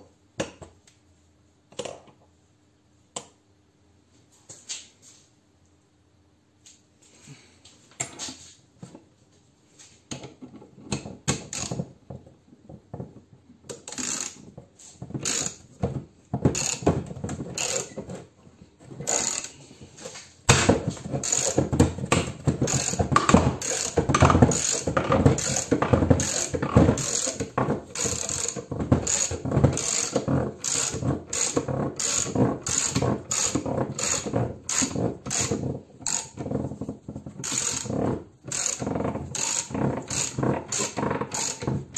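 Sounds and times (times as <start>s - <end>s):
ratchet wrench clicking: 11.5s - 11.8s, 13.7s - 14.4s, 15.2s - 15.6s, 16.6s - 16.8s, 17.6s - 17.9s, 19.1s - 19.5s, 21.2s - 21.6s, 23.6s - 27.4s, 28.0s - 36.3s, 37.4s - 37.9s, 38.5s - 38.8s, 39.4s - 41.6s.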